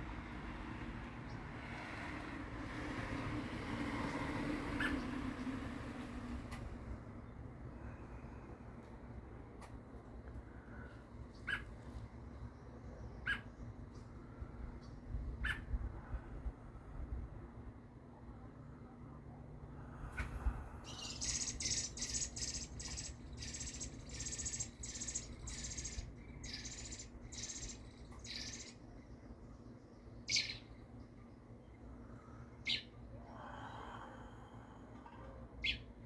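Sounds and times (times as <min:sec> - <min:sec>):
baby birds begging calls: 0:20.2 - 0:28.9, 0:30.3 - 0:30.7.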